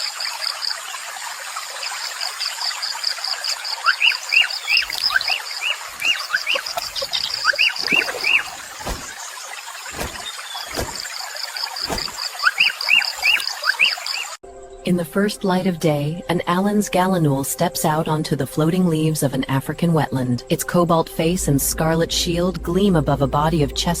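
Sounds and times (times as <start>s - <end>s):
water drip plops: 4.7s - 13.8s.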